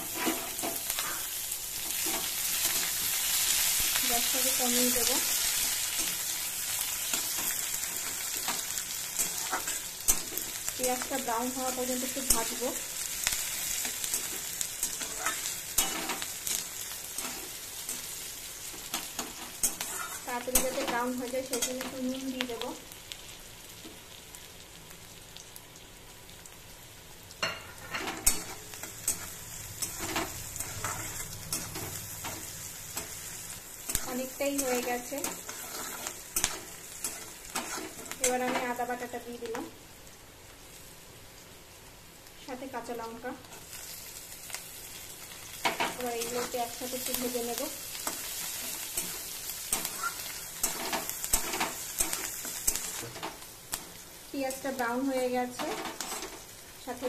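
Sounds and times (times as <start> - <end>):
spatula scraping pan: 0.0 - 2.9, 14.1 - 16.3, 33.9 - 38.6
onion sizzling in hot oil: 0.0 - 57.0.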